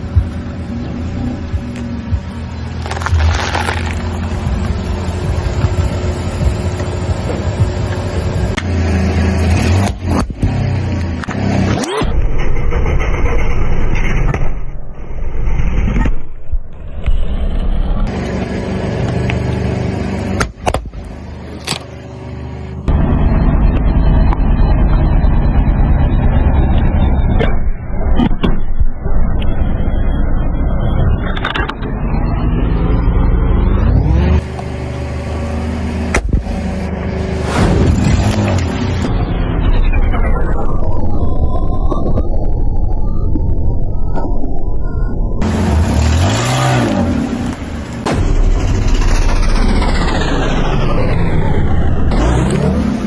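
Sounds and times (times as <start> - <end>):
tyre noise: 0.0 - 8.5
car engine running: 0.0 - 14.7, 16.7 - 44.6, 45.4 - 53.0
sharp crack: 2.8 - 4.4, 45.4 - 53.0.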